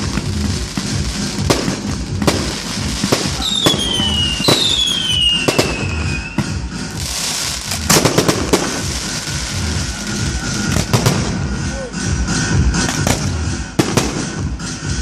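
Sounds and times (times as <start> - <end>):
fireworks bangs: 0.0 - 11.7, 12.7 - 14.7
firework crackling: 0.0 - 14.8
falling firework whistle: 3.1 - 6.7.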